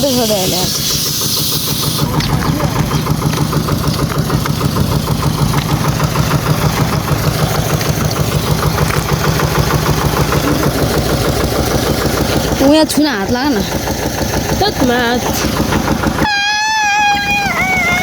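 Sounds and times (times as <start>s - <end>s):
high hiss: 0.0s - 2.2s
engine idling: 0.0s - 18.0s.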